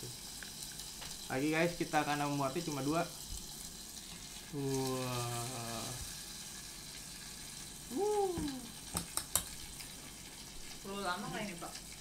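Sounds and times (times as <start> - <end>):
bread sizzling in butter: 0.0 - 12.0
person humming: 4.6 - 6.0, 7.9 - 8.8.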